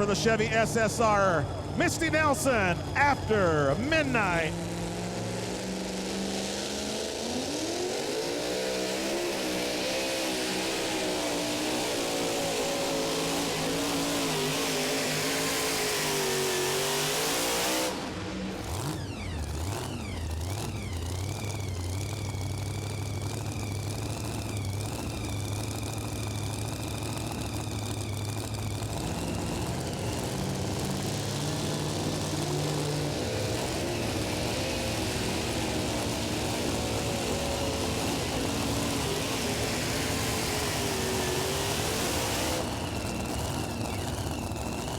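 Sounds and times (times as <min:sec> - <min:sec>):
high whine: 0:00.0 - 0:05.6
truck engine at full throttle: 0:00.0 - 0:44.9.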